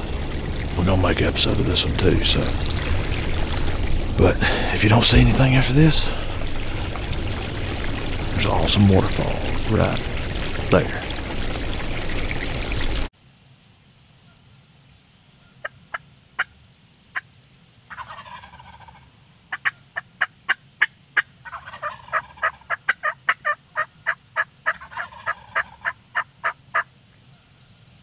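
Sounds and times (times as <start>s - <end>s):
turkey clucking: 17.9s - 26.9s
turkey gobbling: 17.9s - 26.9s.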